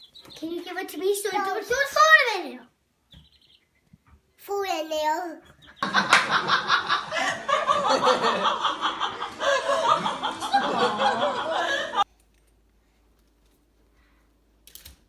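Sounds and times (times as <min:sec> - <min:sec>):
people laughing: 0:05.8 - 0:12.1.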